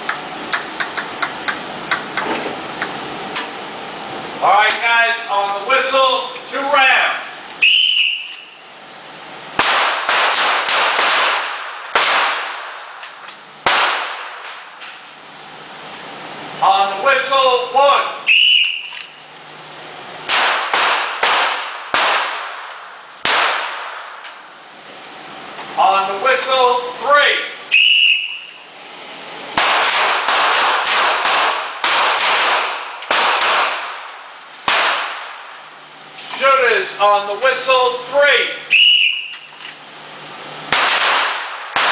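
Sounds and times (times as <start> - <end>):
handgun shots with echo: 29.6 - 34.1, 34.7 - 35.3, 40.7 - 41.9.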